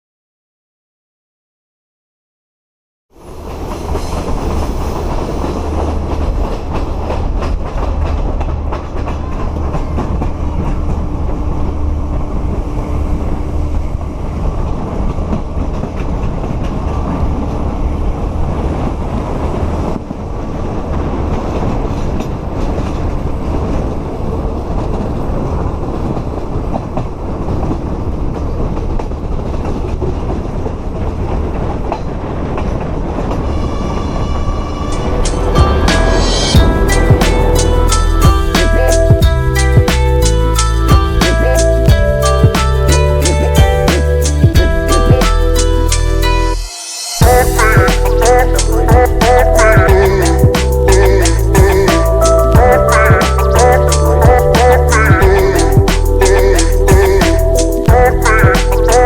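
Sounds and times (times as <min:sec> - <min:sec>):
train rumbling: 0:03.1 - 0:59.0
wheels clicking over rail joints: 0:05.4 - 0:12.4.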